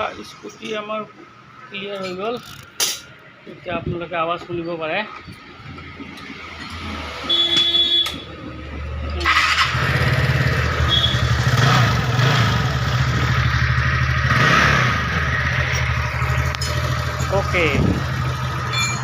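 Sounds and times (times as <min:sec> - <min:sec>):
scooter engine idling: 0:09.2 - 0:14.3, 0:15.0 - 0:19.0.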